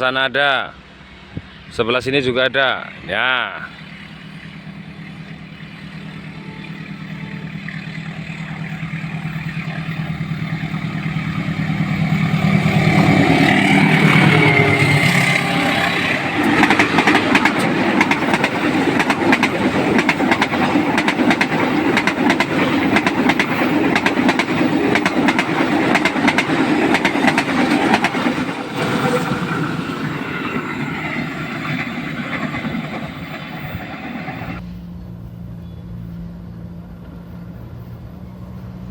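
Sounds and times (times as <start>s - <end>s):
diesel locomotive engine droning: 0.0s - 38.9s
train wheels clattering on rails: 3.6s - 34.7s.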